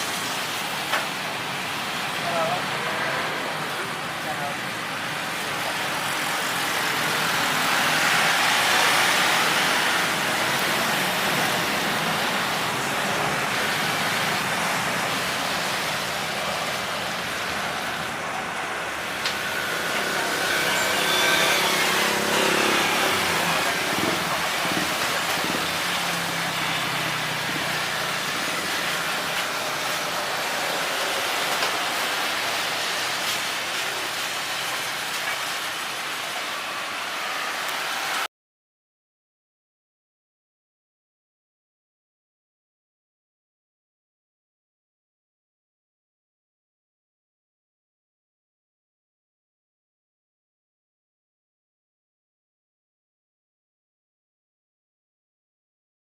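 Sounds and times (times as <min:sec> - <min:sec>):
engine and traffic roar: 0:00.0 - 0:38.3.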